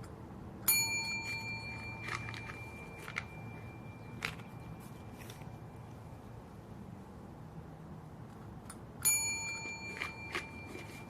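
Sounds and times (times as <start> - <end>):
ringing ding: 0.7 - 4.8, 9.0 - 11.0.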